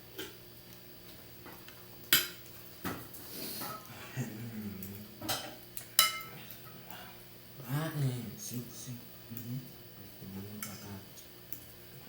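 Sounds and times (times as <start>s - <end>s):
cutlery clinking against dishes: 5.2s - 6.3s.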